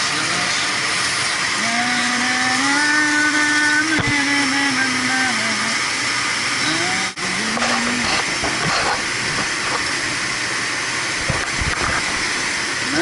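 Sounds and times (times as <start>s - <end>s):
man humming: 6.6s - 8.8s.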